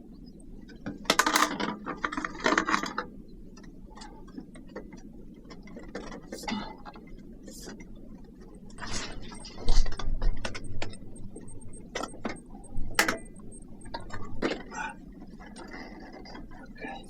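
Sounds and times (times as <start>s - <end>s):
mechanical clicking and knocking: 9.3s - 14.6s.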